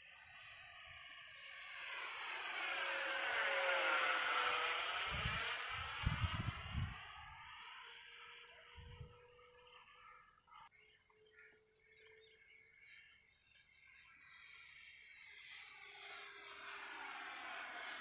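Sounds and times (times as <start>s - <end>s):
model jet turbine whine: 0.0s - 18.0s.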